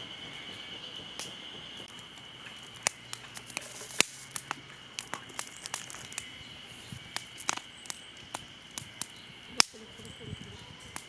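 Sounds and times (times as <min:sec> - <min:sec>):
campfire crackling: 0:00.0 - 0:11.0
sharp pops and snaps: 0:01.2 - 0:06.3, 0:07.0 - 0:09.8.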